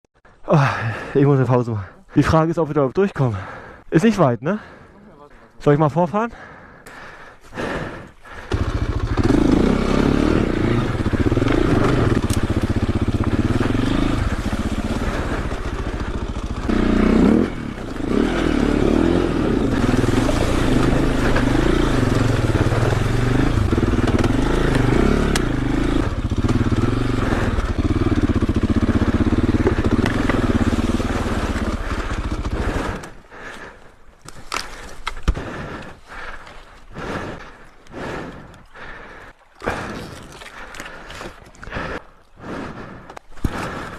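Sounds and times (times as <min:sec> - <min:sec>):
motorcycle engine revving: 0:07.8 - 0:33.7.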